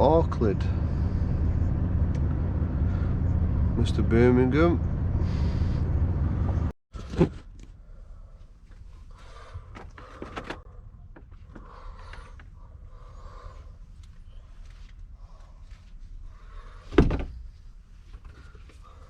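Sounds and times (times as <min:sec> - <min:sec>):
lorry engine humming: 0:00.0 - 0:06.7.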